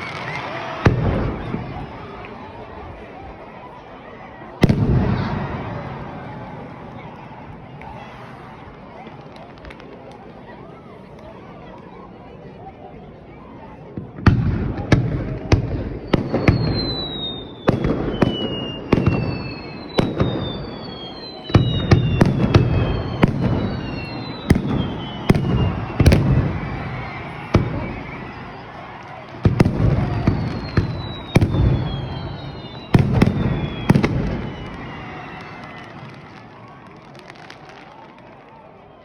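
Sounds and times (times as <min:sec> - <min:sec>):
fireworks bangs: 0:00.0 - 0:03.2, 0:04.5 - 0:10.4, 0:13.9 - 0:39.0
whistling fireworks: 0:00.0 - 0:11.5, 0:12.2 - 0:39.0.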